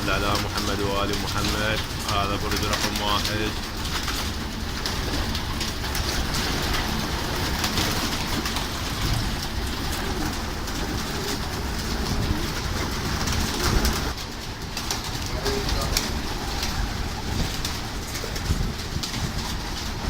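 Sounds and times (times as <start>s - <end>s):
pigeons cooing: 0.0s - 20.0s
steady rumbling background noise: 0.0s - 20.0s.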